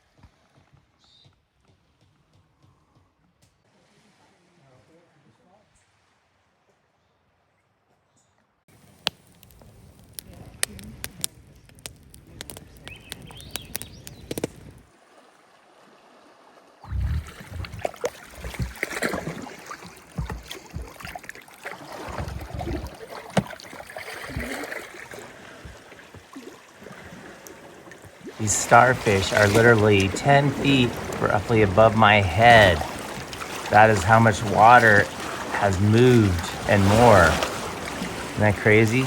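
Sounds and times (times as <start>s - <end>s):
paddle splashing and dripping: 8.8s - 39.0s
low rumbling: 16.9s - 18.8s.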